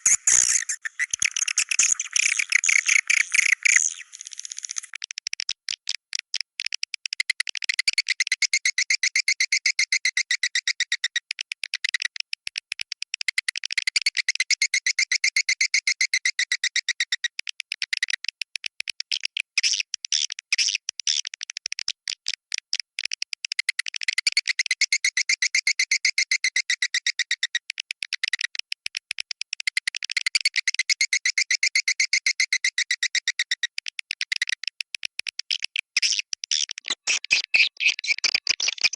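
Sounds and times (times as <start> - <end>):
swiftlets twittering chirps: 0.0 - 5.0.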